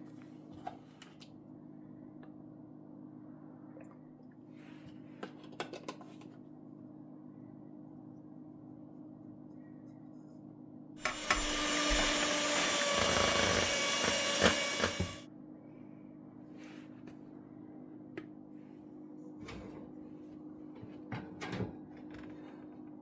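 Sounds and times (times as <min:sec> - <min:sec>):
kitchen appliance motor running: 0:11.0 - 0:15.2.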